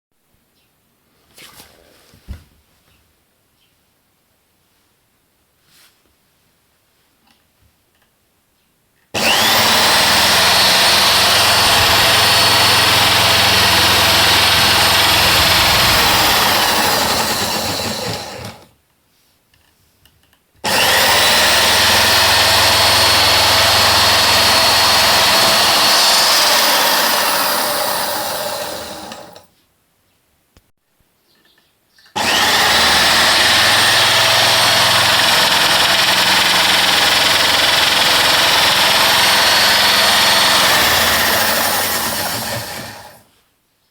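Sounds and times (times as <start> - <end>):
motor spinning with high whine: 9.2 - 18.7, 20.6 - 29.4, 32.2 - 43.2.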